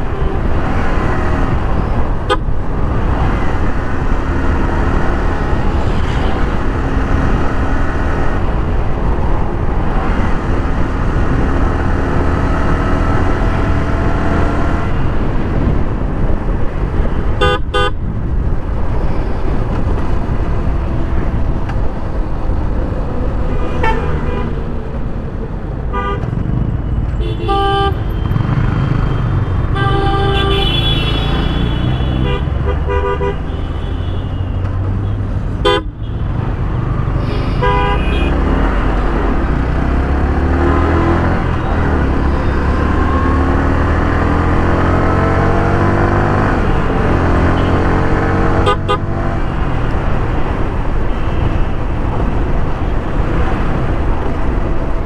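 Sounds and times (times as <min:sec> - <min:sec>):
vehicle horns honking: 0:00.0 - 0:01.0, 0:02.2 - 0:02.6, 0:17.4 - 0:18.0, 0:23.4 - 0:24.7, 0:25.9 - 0:36.4, 0:37.2 - 0:39.2, 0:46.4 - 0:49.9
motorcycle engine revving: 0:35.7 - 0:51.0.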